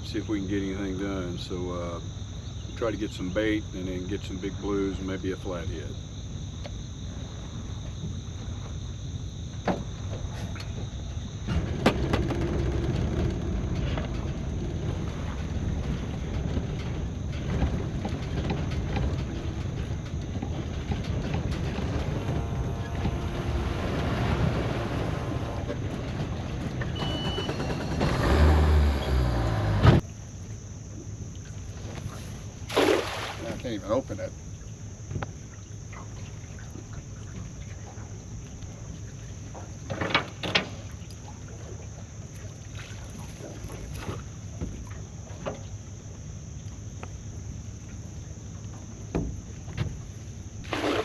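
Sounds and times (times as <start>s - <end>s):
water: 0.0s - 51.0s
wind: 0.0s - 51.0s
boat motor: 11.6s - 30.1s.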